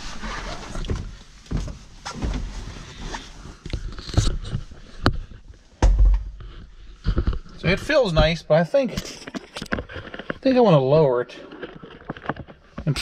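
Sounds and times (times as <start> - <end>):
seat creaks: 0.0 - 5.4
heavy thump: 5.8 - 6.5.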